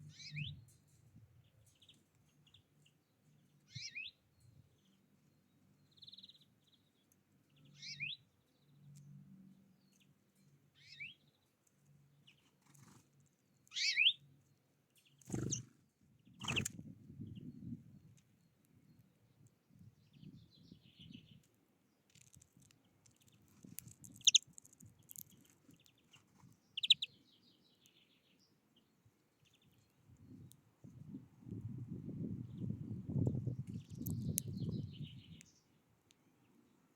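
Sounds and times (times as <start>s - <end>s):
bird singing: 0.0s - 0.8s, 1.5s - 11.5s, 13.7s - 14.3s, 24.1s - 24.4s, 25.1s - 29.9s.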